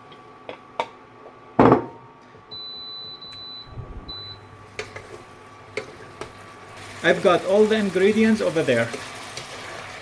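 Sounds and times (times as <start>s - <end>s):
kitchen appliance beeps: 2.5s - 4.6s.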